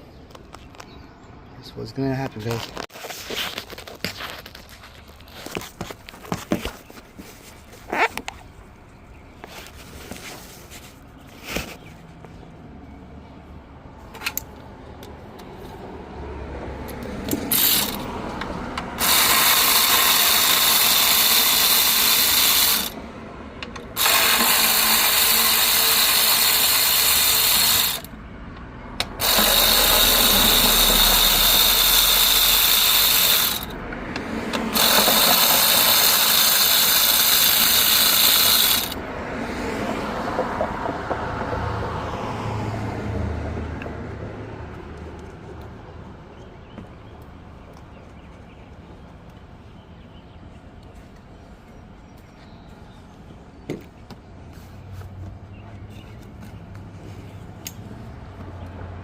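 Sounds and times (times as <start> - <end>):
power ratchet running: 17.2 - 18.1, 18.8 - 23.0, 23.7 - 28.1, 29.0 - 33.8, 34.7 - 39.0.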